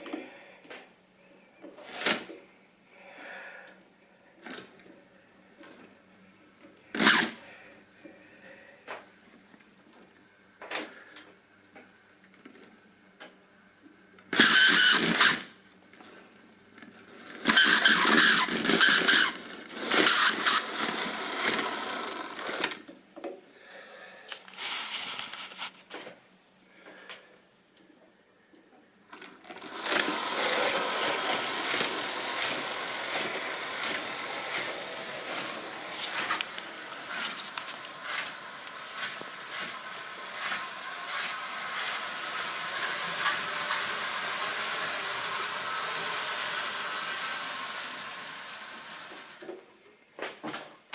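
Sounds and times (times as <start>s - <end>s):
model train running on track: 29.6s - 49.4s.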